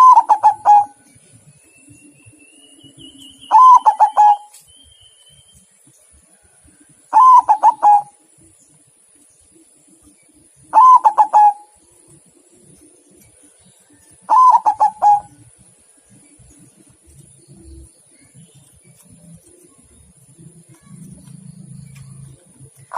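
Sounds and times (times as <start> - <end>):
dove cooing: 0.0 - 1.0, 3.5 - 4.6, 7.1 - 8.2, 10.6 - 11.9, 14.2 - 15.5.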